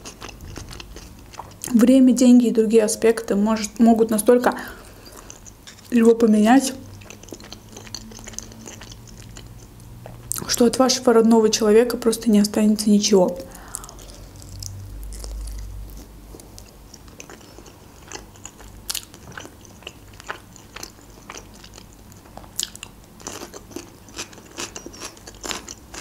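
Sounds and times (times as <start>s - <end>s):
chewing chicken: 0.0s - 1.7s, 4.8s - 6.0s, 6.7s - 10.5s, 13.6s - 26.0s
mouth clicks and crunches: 0.0s - 1.7s, 6.9s - 10.6s, 13.6s - 26.0s.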